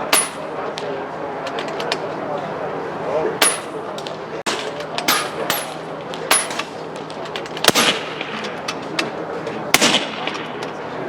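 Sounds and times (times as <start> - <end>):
air rifle shots: 0.0 - 0.6, 4.5 - 8.7, 9.7 - 10.7.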